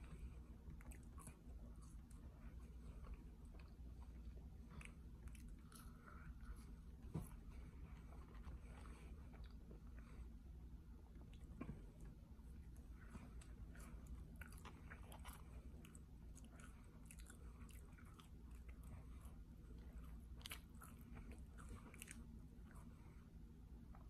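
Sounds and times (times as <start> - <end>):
steady low hum: 0.0 - 24.0
person chewing: 0.2 - 6.8, 12.6 - 22.9.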